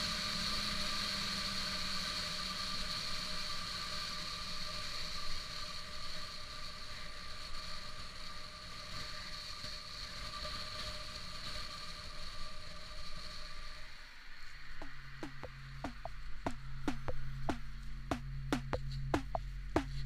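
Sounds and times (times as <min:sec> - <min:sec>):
motorcycle engine at steady revs: 0:00.0 - 0:04.2, 0:14.8 - 0:20.0.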